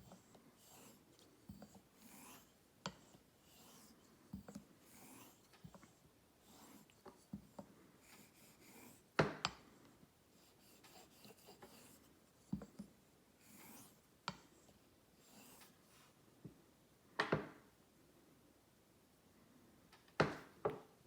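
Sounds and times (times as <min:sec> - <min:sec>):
razor scraping on stone: 0:00.0 - 0:07.3, 0:08.0 - 0:09.1, 0:10.4 - 0:12.1, 0:13.4 - 0:14.4, 0:15.2 - 0:15.7.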